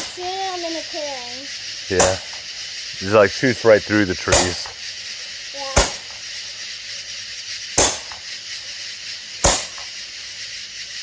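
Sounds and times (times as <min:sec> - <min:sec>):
firework hissing: 0:00.0 - 0:11.0
firework shot popping: 0:01.9 - 0:02.6, 0:04.2 - 0:05.0, 0:05.6 - 0:06.7, 0:07.4 - 0:08.6, 0:09.4 - 0:10.1.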